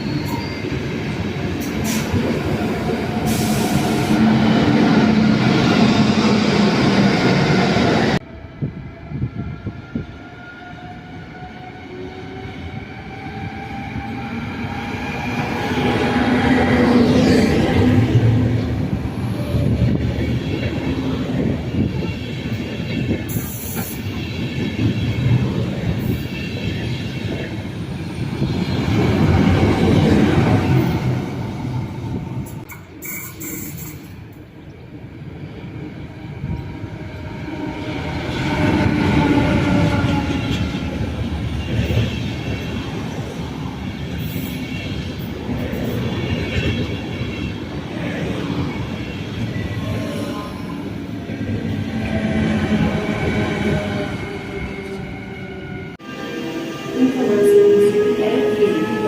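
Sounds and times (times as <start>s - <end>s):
train wheels squealing: 0.0s - 0.9s, 33.0s - 34.2s.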